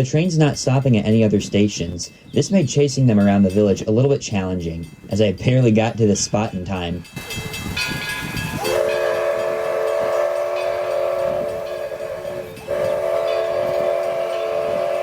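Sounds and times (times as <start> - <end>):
steam locomotive whistle: 7.2 - 15.0.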